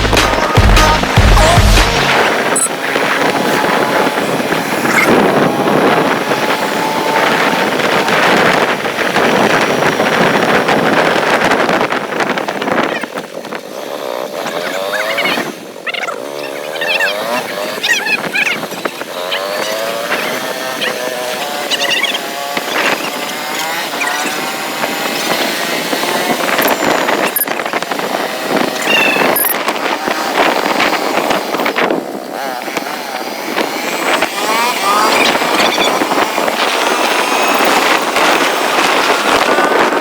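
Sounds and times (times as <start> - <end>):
music: 0.0 - 2.3
heavy rushing noise: 0.0 - 12.6
motorcycle engine: 0.0 - 40.0
warbling chirp-like sounds: 14.5 - 24.5.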